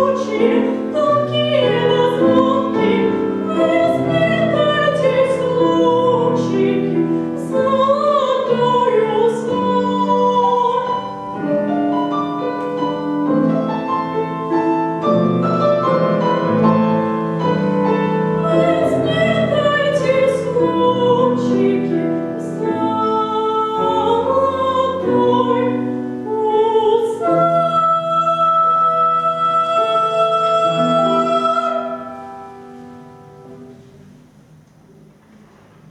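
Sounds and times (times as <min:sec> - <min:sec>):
operatic singing with vibrato: 0:00.0 - 0:32.6
piano: 0:00.0 - 0:35.9.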